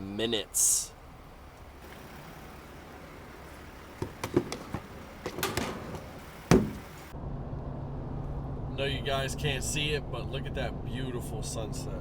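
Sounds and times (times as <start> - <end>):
light clicks and knocks: 4.0 - 6.9
sharp thump: 4.0 - 6.9.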